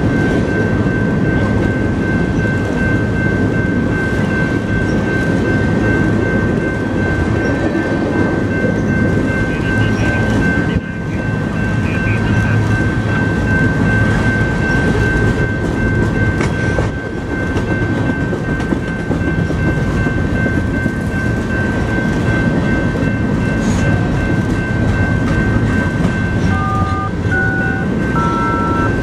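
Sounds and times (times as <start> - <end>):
steady high tone: 0.0 - 29.0.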